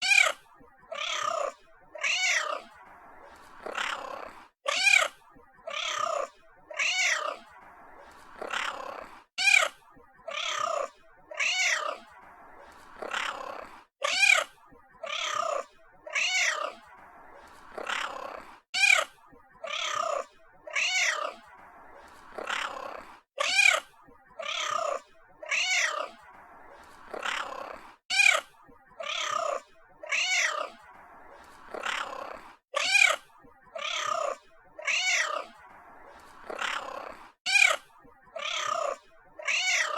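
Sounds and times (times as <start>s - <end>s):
cat meowing: 0.0s - 2.7s, 3.6s - 7.4s, 8.4s - 9.7s, 10.3s - 12.1s, 13.0s - 16.8s, 17.8s - 21.4s, 22.4s - 23.8s, 24.4s - 26.2s, 27.1s - 30.8s, 31.7s - 33.2s, 33.8s - 35.6s, 36.5s - 37.8s, 38.4s - 39.9s.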